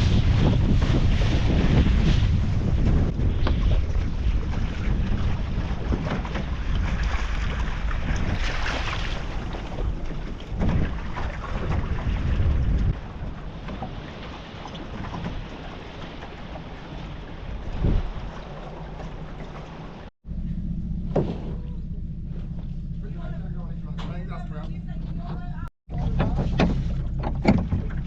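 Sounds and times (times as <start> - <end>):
wind buffeting microphone: 0.0 - 20.1.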